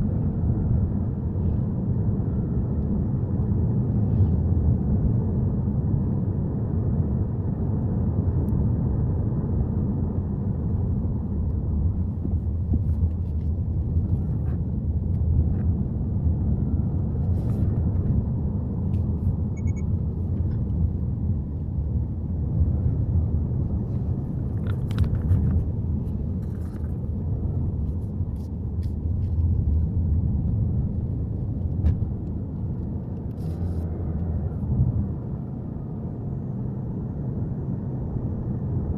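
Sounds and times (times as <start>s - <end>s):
car engine and road rumble: 0.0s - 38.9s.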